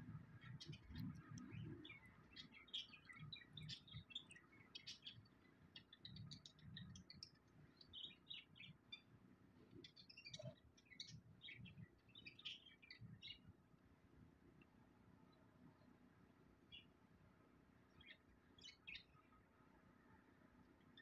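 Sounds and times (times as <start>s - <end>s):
small birds chirping faintly: 0.0s - 21.0s.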